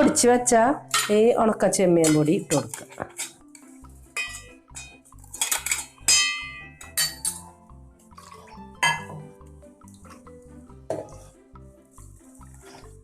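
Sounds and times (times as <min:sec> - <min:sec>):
soft background music: 0:00.0 - 0:13.0
metal spoon clinking on a jar: 0:04.2 - 0:07.5, 0:08.8 - 0:09.1.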